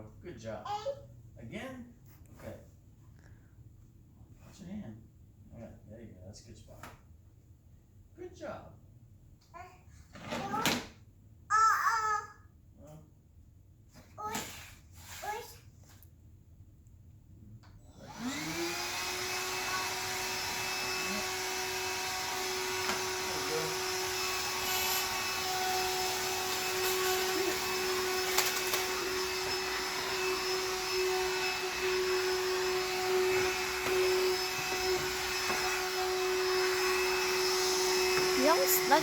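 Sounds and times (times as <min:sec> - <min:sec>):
vacuum cleaner running: 0:17.8 - 0:39.0.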